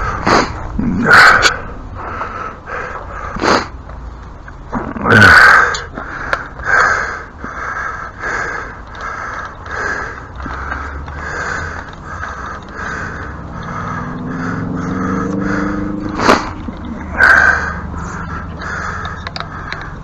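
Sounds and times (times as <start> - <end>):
animal calls: 9.0 - 20.0.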